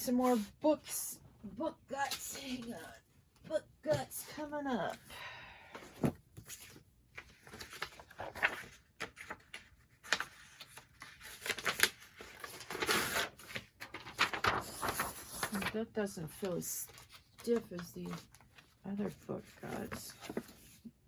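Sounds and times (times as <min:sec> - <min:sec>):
paper rustling: 0:05.9 - 0:21.0
pages riffling: 0:06.5 - 0:15.8.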